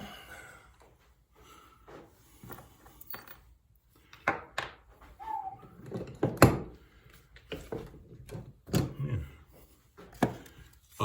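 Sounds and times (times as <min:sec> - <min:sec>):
tools clattering and knocking: 0:02.4 - 0:05.1, 0:05.7 - 0:09.0, 0:10.0 - 0:10.8.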